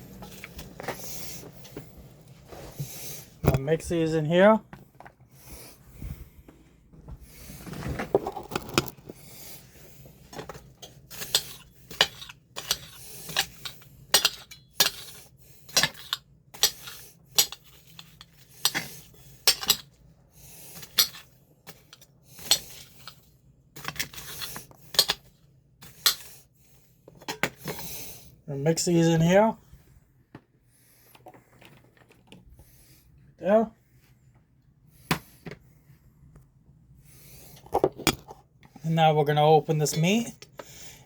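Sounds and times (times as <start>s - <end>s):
metal utensil clinking on cookware: 11.2s - 15.1s.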